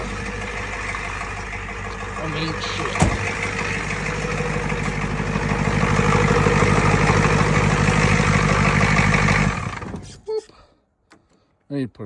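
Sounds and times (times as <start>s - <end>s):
diesel engine clattering: 0.0s - 10.2s.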